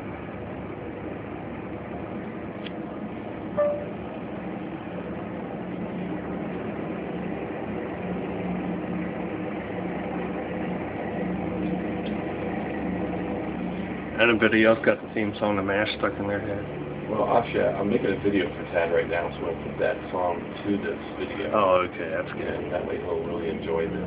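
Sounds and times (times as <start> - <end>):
muffled helicopter hum: 0.0 - 24.0
short sharp sound: 3.6 - 4.0.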